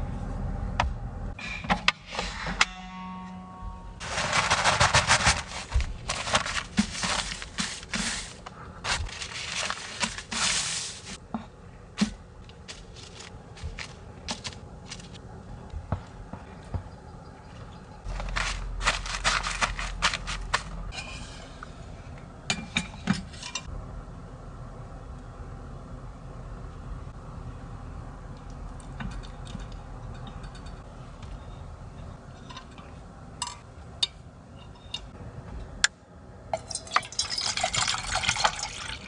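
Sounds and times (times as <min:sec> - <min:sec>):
faint steady hum: 0:00.0 - 0:39.0
clicks and knocks of objects: 0:04.0 - 0:10.6, 0:11.4 - 0:15.2, 0:18.1 - 0:20.9
rustling: 0:04.0 - 0:11.2, 0:12.0 - 0:15.2, 0:18.1 - 0:20.9.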